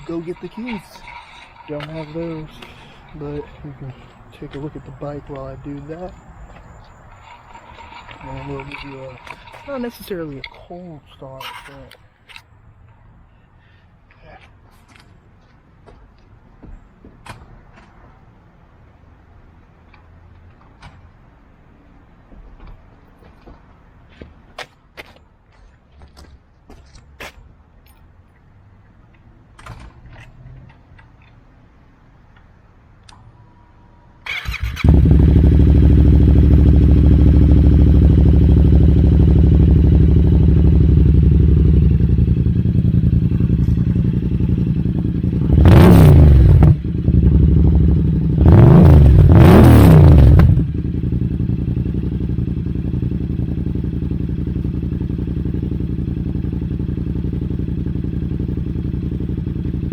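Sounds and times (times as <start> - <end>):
motorcycle engine starting and revving: 0.0 - 10.8, 34.2 - 59.9.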